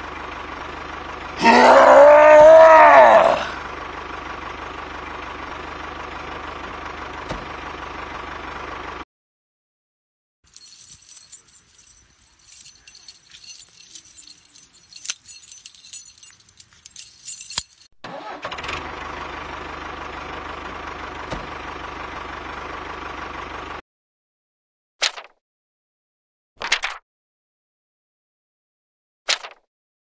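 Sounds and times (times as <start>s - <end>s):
small parts clicking and rattling: 10.5s - 17.9s.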